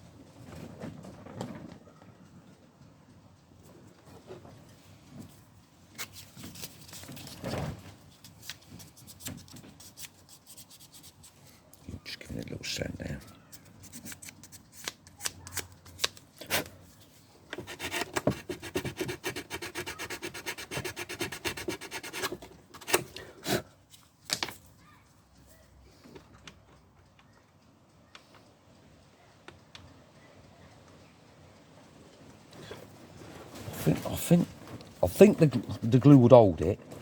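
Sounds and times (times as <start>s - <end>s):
hand sanding strokes: 9.8s - 11.4s, 17.6s - 22.4s.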